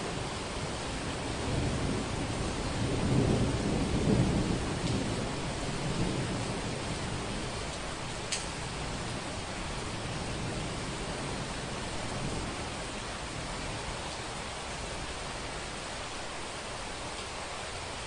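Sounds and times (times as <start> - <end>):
thunder rumbling: 0.0 - 13.9
rain hiss: 0.0 - 18.0
sharp tick: 8.3 - 8.5.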